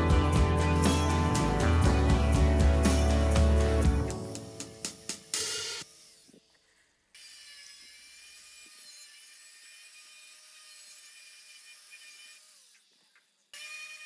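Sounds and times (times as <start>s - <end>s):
power tool whining: 0.0s - 5.1s.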